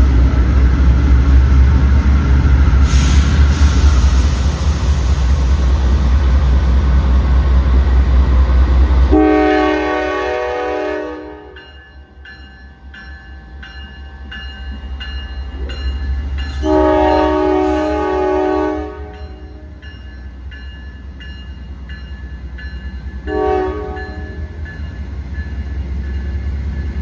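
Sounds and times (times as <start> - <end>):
diesel locomotive rumble: 0.0 - 11.6, 13.9 - 27.0
train air horn: 9.1 - 11.6, 16.6 - 19.7, 23.3 - 24.5
train bell ringing: 11.4 - 17.7, 19.0 - 27.0.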